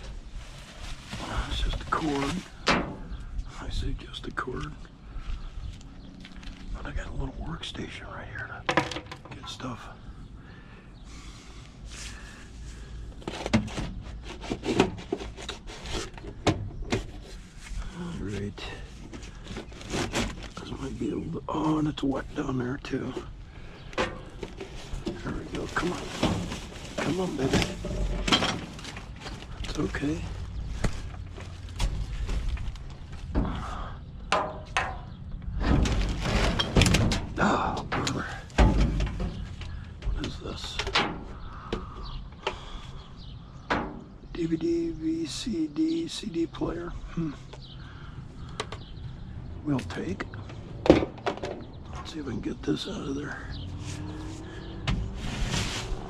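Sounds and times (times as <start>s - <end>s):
steady low rumble: 0.0s - 8.7s, 20.4s - 45.3s
hard objects knocking and scraping: 8.7s - 9.4s, 13.2s - 17.4s, 23.1s - 29.6s, 34.3s - 42.7s
rubbing: 12.8s - 16.3s.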